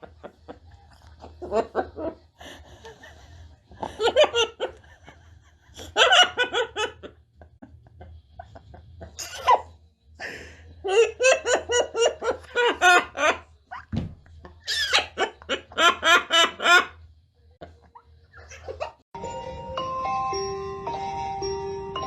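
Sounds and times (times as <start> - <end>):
short thump: 13.9 - 14.3.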